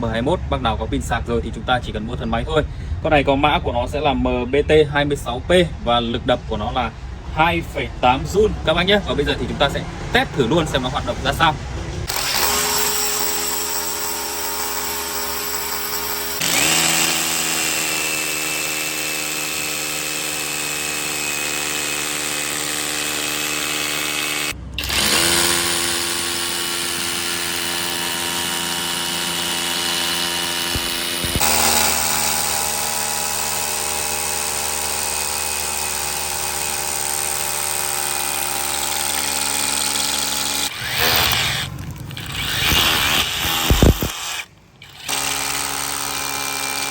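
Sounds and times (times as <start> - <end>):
rotary hammer drill motor whine: 12.0 - 46.9.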